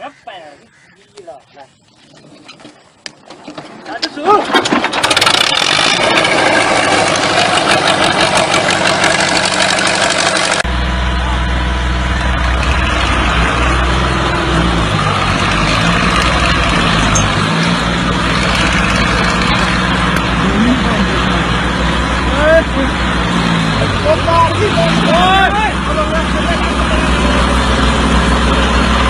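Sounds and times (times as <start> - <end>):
clattering and clicks: 2.5 - 8.7
heavy vehicle engine rumble: 4.5 - 29.0.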